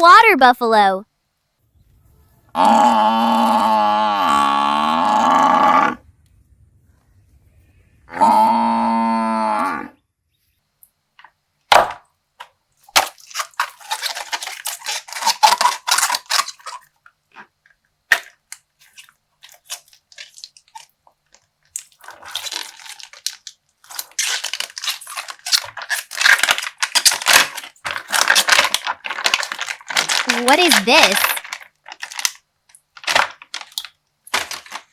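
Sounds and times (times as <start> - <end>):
bag popping: 11.7 - 12.1, 12.9 - 17.5, 18.1 - 20.9, 21.8 - 34.9
plastic crinkling and tearing: 12.9 - 34.9.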